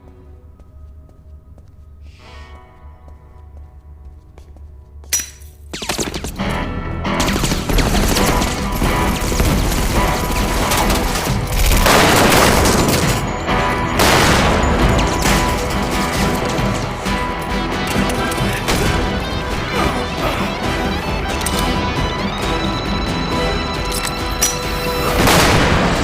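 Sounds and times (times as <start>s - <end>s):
film score music: 0.0s - 26.0s
rapid gunfire: 7.2s - 17.1s
sharp gunshot: 14.0s - 14.8s, 25.2s - 26.0s.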